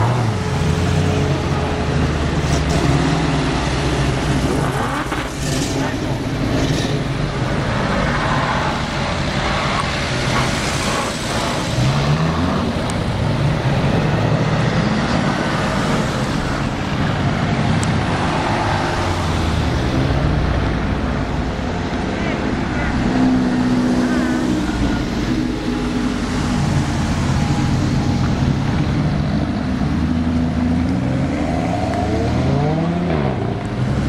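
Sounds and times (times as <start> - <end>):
sports car engines pulling away: 23.1 - 34.0.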